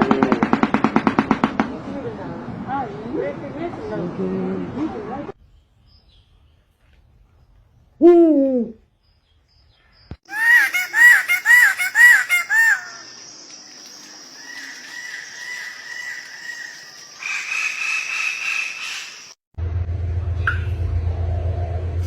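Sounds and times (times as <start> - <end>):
birds calling: 9.2 - 19.4.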